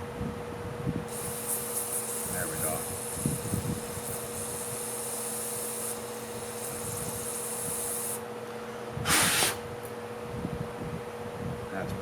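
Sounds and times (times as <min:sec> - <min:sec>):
steady hum: 0:00.8 - 0:11.5
spray hissing: 0:01.1 - 0:08.2, 0:09.1 - 0:09.6.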